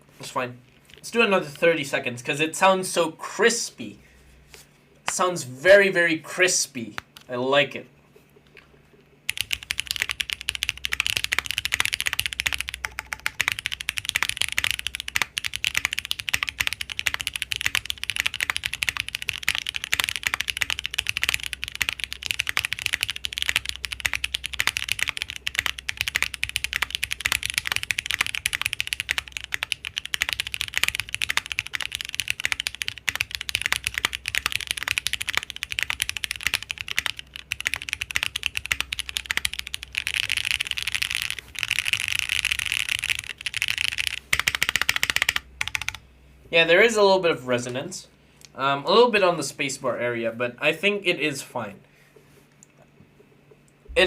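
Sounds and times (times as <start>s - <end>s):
mechanical keyboard key clacks: 9.3s - 46.0s.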